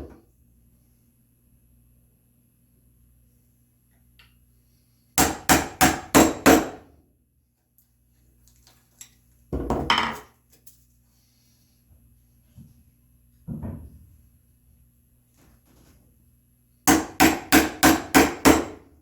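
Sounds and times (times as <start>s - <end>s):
wooden mallet striking chisel: 5.2s - 6.8s, 16.9s - 18.8s.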